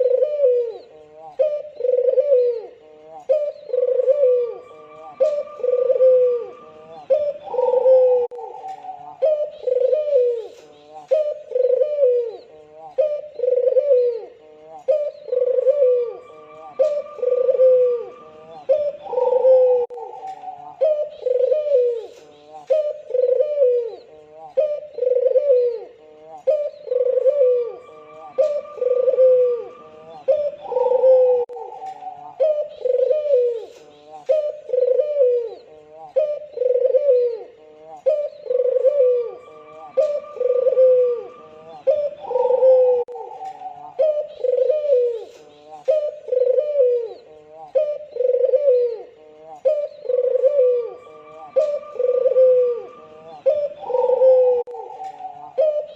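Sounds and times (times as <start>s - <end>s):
dove cooing: 0.0s - 55.9s
fainter higher bird call: 0.0s - 55.9s.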